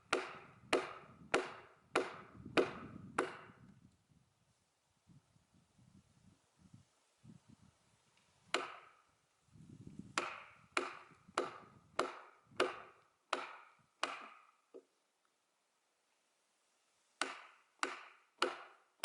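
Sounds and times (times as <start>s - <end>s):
hand tool blows splitting a log: 0.0s - 3.7s, 8.5s - 8.9s, 10.0s - 14.5s, 17.2s - 18.8s.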